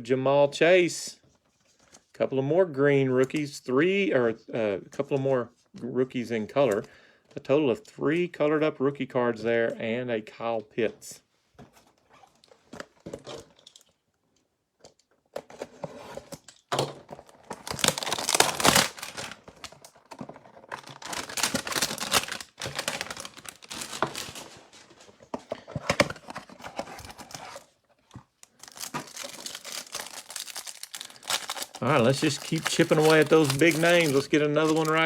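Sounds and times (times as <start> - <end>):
packaging tearing and rustling: 16.1 - 25.2, 25.9 - 35.0.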